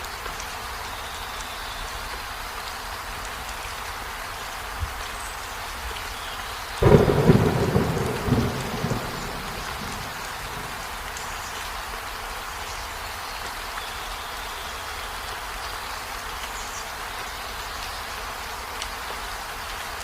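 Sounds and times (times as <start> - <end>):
steady rain falling: 0.0 - 20.0
thunder clap rumbling: 6.8 - 11.2.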